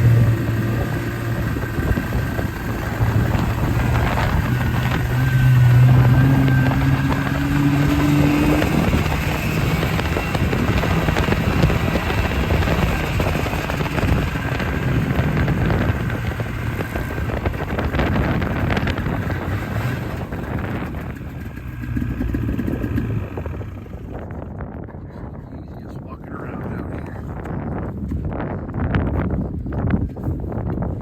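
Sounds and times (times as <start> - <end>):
small vehicle engine running: 0.0 - 24.6.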